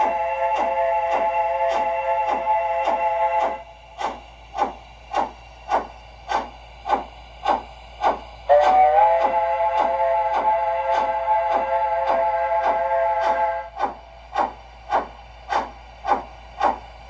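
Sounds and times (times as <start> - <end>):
multi-tone steam whistle: 0.0 - 3.8, 8.5 - 14.0
steam locomotive exhaust chuffs: 0.0 - 17.0.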